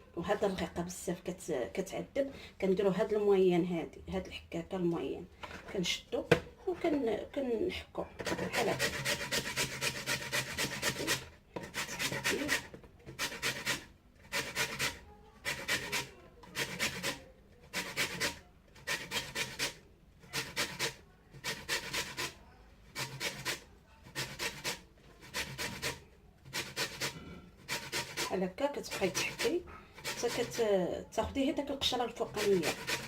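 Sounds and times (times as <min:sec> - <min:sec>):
lemon rasping on a grater: 0:08.2 - 0:30.7, 0:31.8 - 0:33.0.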